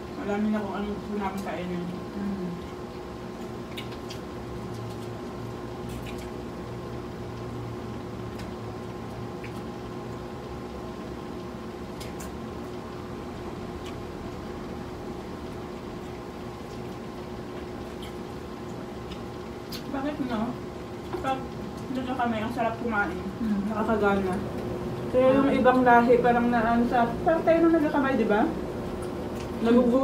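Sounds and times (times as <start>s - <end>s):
air conditioner humming: 0.0s - 30.0s
people chewing with wet mouth sounds: 1.2s - 25.9s, 28.8s - 30.0s
crunchy clicks of food: 3.4s - 6.4s, 11.4s - 12.9s, 13.8s - 14.0s, 15.9s - 19.9s.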